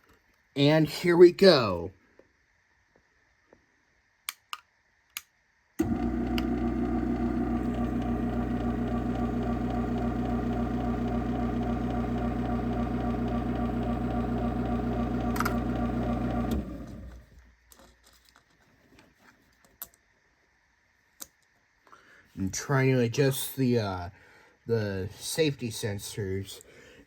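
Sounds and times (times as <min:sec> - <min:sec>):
garage door opener motor hum: 0:05.8 - 0:17.4.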